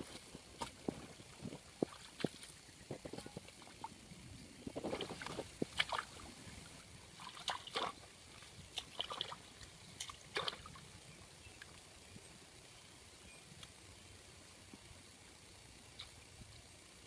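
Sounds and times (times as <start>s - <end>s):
water splashing and sloshing: 0.0s - 4.0s, 4.7s - 10.9s.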